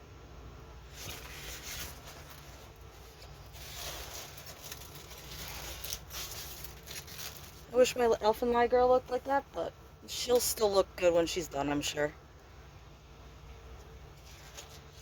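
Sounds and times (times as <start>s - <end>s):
plastic packaging crinkling: 0.8s - 9.2s, 13.8s - 15.0s.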